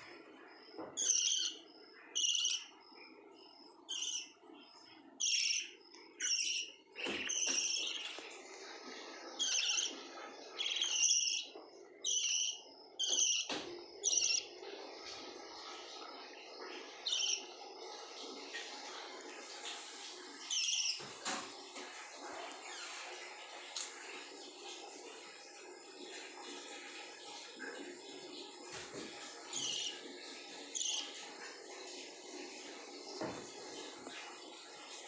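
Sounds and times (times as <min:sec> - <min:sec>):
lovebirds shrill chirps: 0:01.0 - 0:01.6, 0:02.2 - 0:02.7, 0:03.9 - 0:04.4, 0:05.2 - 0:08.3, 0:09.4 - 0:10.0, 0:10.6 - 0:14.5, 0:17.0 - 0:17.4, 0:20.5 - 0:21.0, 0:29.5 - 0:30.0, 0:30.8 - 0:31.1.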